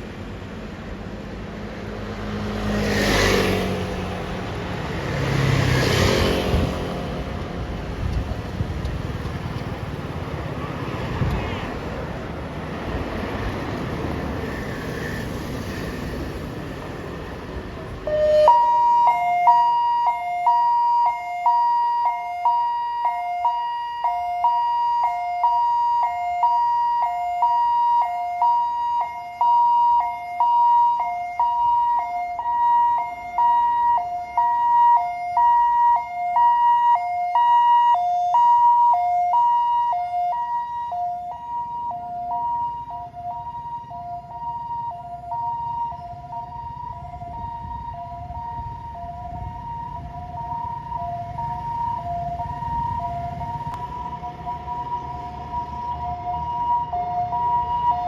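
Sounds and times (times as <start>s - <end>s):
two-tone siren: 18.0s - 58.0s.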